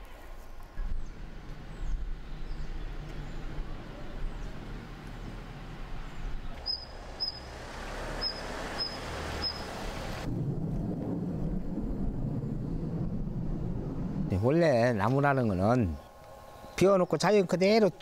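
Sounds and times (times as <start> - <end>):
bird chirping: 0.9 - 5.4, 6.0 - 9.8
low rumble: 10.2 - 16.2.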